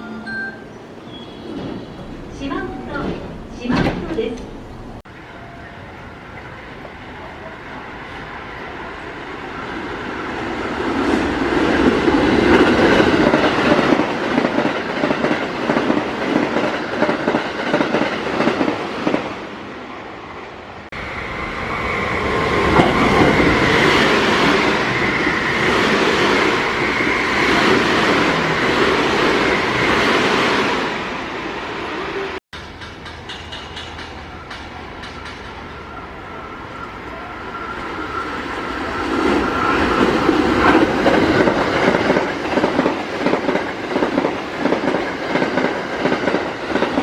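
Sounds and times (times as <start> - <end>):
high train whine: 0.0 - 47.0
train wheels clattering over rail joints: 32.6 - 35.6.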